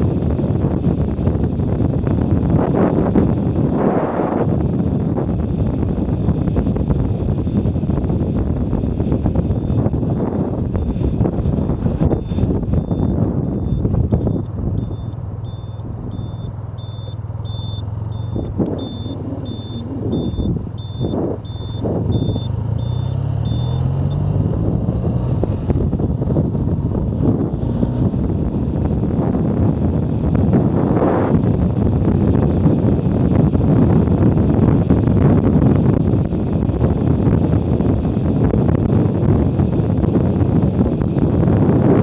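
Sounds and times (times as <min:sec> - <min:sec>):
motorcycle engine running: 0:00.0 - 0:42.0
wind noise: 0:00.0 - 0:42.0
short high beeps: 0:12.8 - 0:24.3.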